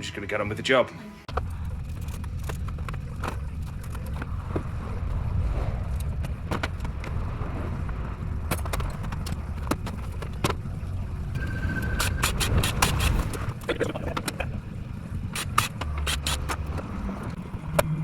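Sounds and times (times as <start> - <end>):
low rumble: 1.3 - 15.3.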